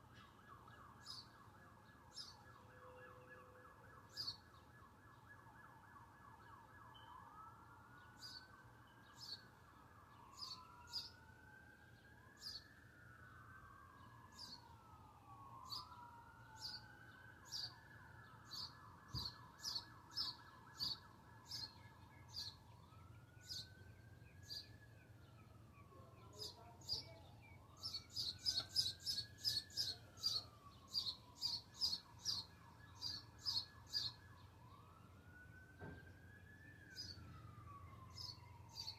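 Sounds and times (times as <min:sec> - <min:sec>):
faint sirens wailing: 0:00.0 - 0:38.9
bird chirping: 0:04.1 - 0:04.5, 0:08.0 - 0:08.5, 0:10.1 - 0:11.2, 0:15.6 - 0:34.8, 0:36.9 - 0:38.9.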